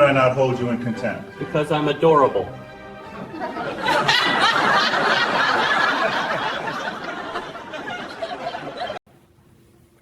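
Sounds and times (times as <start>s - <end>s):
crowd laughing: 3.0s - 9.0s.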